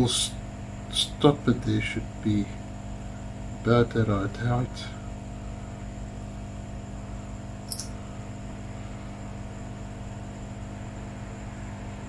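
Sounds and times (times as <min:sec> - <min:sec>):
electrical mains hum with hiss: 0:00.0 - 0:12.0
small sharp click: 0:07.6 - 0:08.0.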